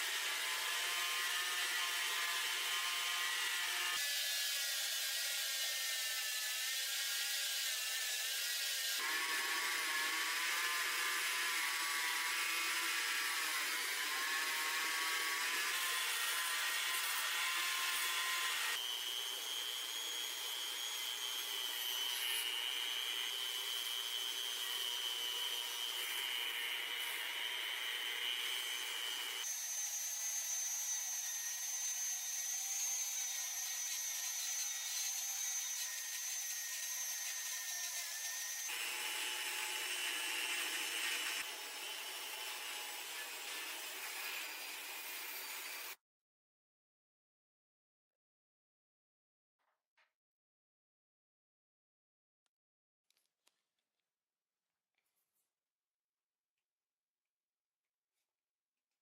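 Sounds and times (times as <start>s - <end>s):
power tool whining and rasping: 0.0s - 46.0s.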